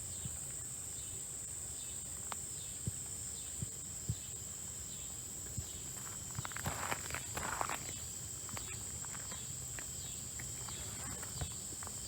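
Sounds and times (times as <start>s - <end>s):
insect chorus drone: 0.0s - 12.0s
rustling crunches: 5.8s - 12.0s.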